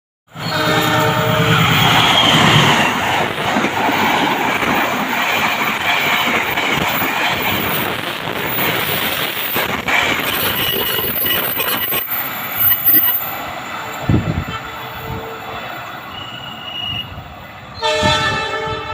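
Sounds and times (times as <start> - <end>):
train rumble and rattle: 0.3 - 18.9.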